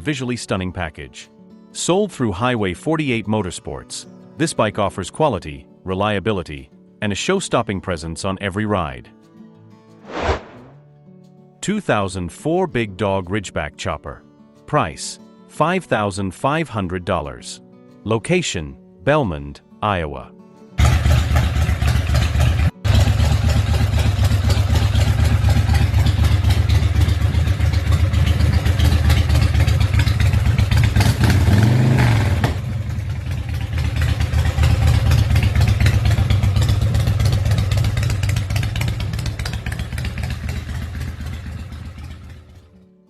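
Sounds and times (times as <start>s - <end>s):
motorcycle engine running: 20.8s - 42.6s.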